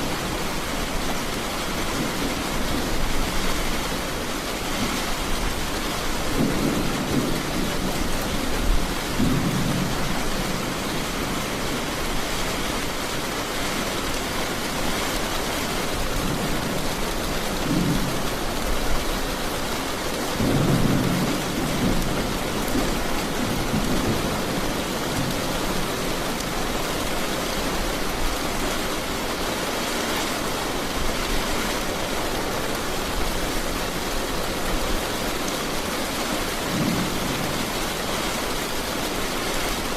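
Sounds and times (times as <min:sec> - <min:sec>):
heavy rain falling: 0:00.0 - 0:39.9
thunder rumbling: 0:05.2 - 0:11.6.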